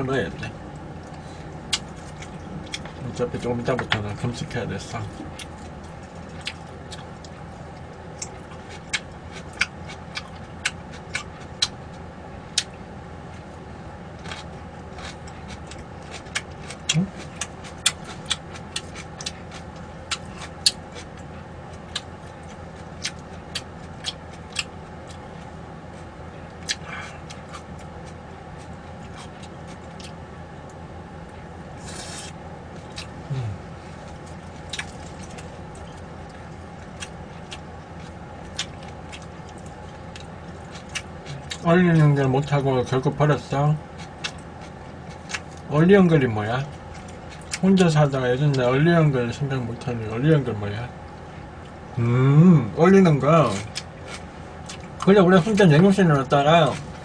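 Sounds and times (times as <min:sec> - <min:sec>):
low hum: 0:00.0 - 0:57.0.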